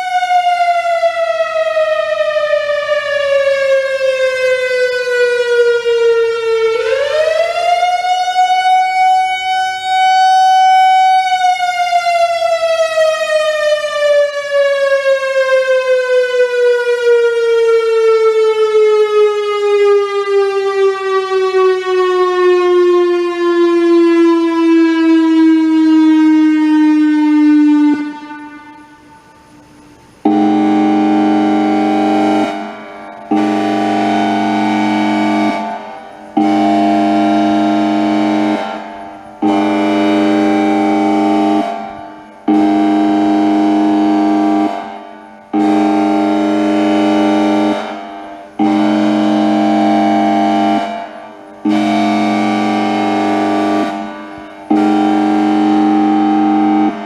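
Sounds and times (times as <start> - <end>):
warning siren wailing: 0.0 - 57.0
steady horn-like tone: 26.5 - 57.0.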